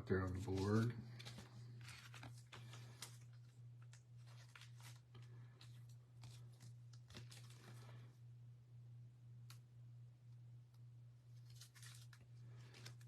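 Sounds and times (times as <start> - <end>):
trading cards rustling in sleeves: 0.0 - 8.2, 11.2 - 13.0
low electrical hum: 0.0 - 13.0.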